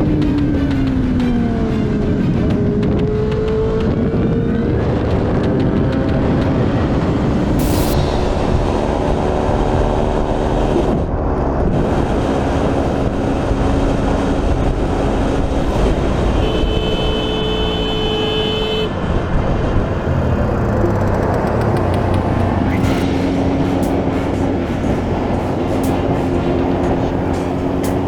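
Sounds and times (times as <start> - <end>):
motorcycle engine: 12.3 - 28.0
vehicle horn: 15.8 - 19.1.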